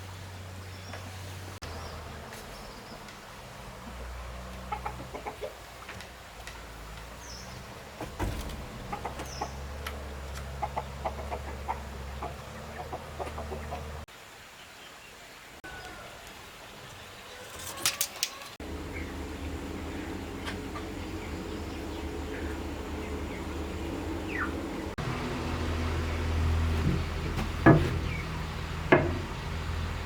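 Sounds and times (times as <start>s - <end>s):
chickens clucking: 1.8s - 14.1s, 15.7s - 30.0s
low steady hum: 18.6s - 30.0s.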